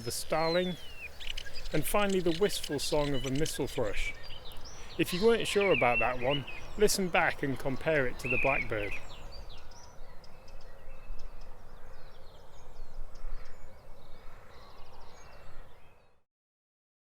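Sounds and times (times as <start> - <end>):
bird calls and chirps: 0.0 - 16.2.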